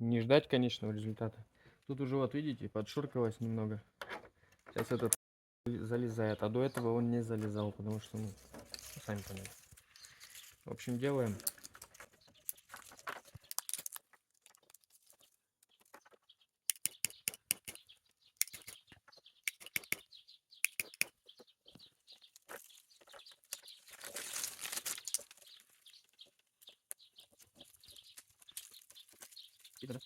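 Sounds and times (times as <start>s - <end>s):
plastic strip crinkling and clicking: 22.3s - 27.0s, 27.6s - 29.9s.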